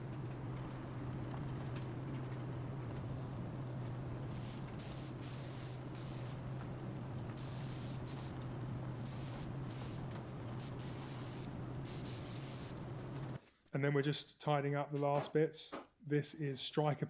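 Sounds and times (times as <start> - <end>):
spray gun hissing: 4.3 - 13.4.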